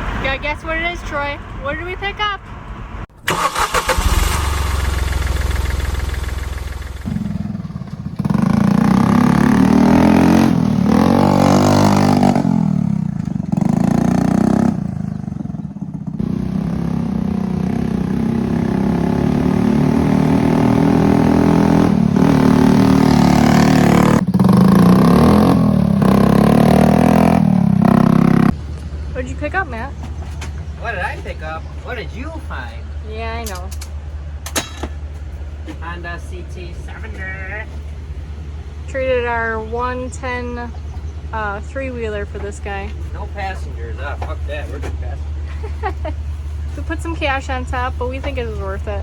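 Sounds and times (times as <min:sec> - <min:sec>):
vehicle engine revving: 0:02.8 - 0:29.7.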